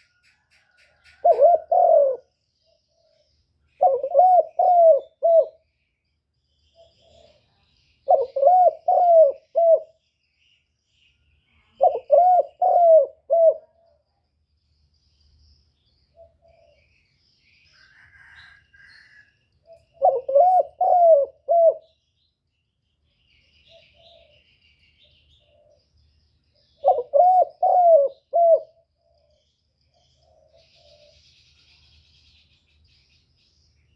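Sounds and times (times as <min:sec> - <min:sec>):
bird calling: 0:03.8 - 0:05.6, 0:08.1 - 0:10.0, 0:11.8 - 0:13.8, 0:17.7 - 0:22.0, 0:26.8 - 0:31.3.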